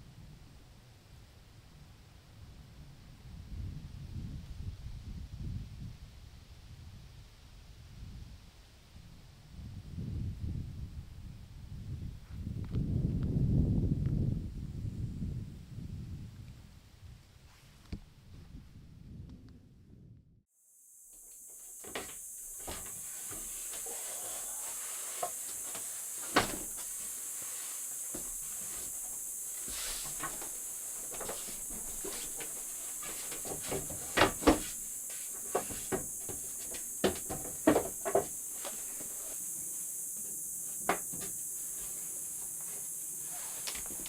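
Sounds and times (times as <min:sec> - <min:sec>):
night insects hissing: 0:20.6 - 0:44.0.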